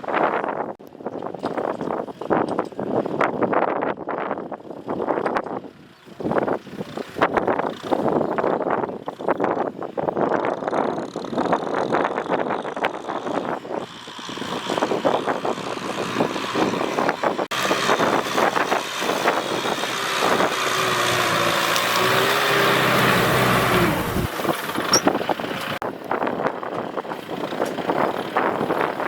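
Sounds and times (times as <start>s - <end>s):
tractor engine clattering: 10.2s - 29.0s.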